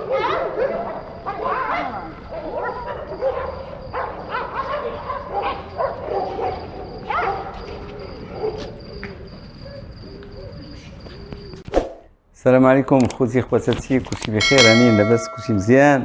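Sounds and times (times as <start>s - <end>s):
dogs barking: 0.0s - 8.8s.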